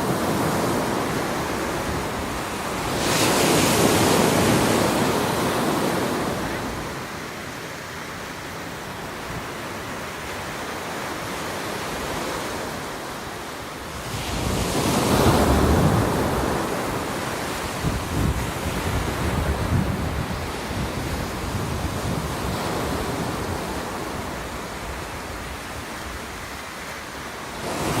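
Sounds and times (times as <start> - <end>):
steady surf: 0.0 - 28.0
wave breaking and washing up: 0.0 - 28.0
wind buffeting microphone: 13.9 - 26.4.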